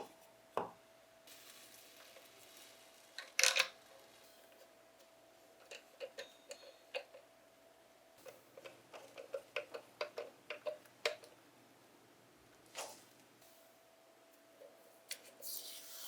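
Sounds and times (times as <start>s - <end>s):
tools and parts clicking: 3.2s - 3.8s, 5.6s - 7.2s, 8.2s - 11.3s.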